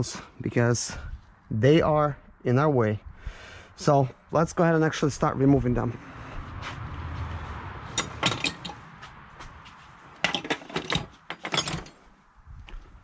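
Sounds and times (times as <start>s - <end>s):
metal tools clinking: 7.9s - 8.8s, 10.2s - 12.1s.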